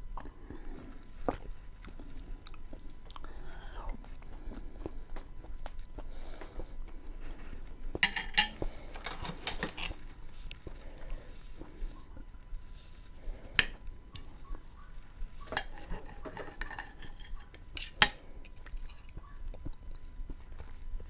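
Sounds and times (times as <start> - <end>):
wet chewing sounds: 0.0 - 21.0
sharp utensil clinks: 8.0 - 8.6
utensil scraping a plate: 8.0 - 10.0, 15.2 - 19.2.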